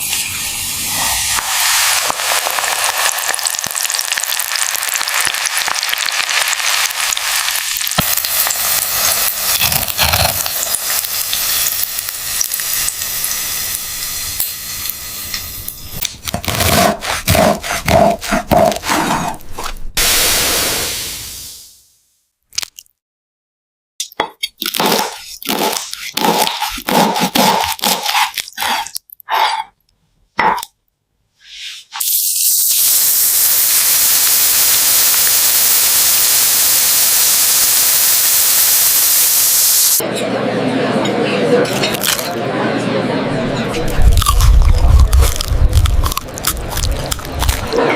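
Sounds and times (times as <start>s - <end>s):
food deep-frying in oil: 0.0s - 16.2s, 32.0s - 40.0s
crunching and chewing: 22.5s - 22.9s, 24.5s - 29.3s, 41.8s - 42.4s, 43.9s - 47.9s.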